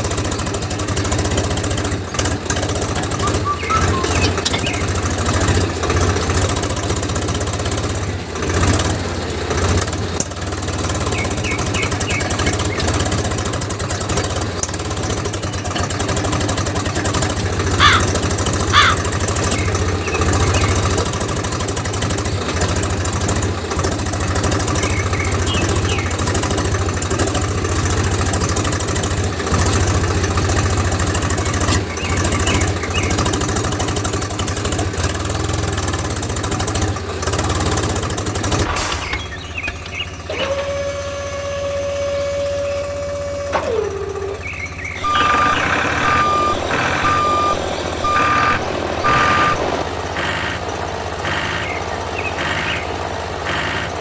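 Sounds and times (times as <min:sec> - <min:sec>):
motor knocking and humming: 0:00.0 - 0:54.0
short rising chirps: 0:03.2 - 0:05.0, 0:45.0 - 0:50.6.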